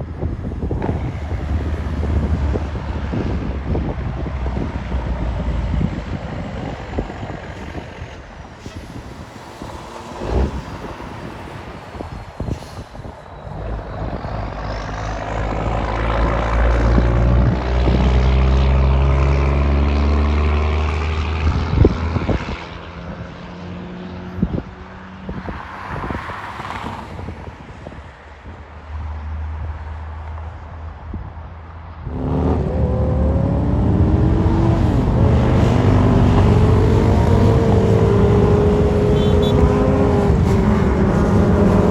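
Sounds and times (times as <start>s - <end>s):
truck driving past: 32.0s - 41.9s.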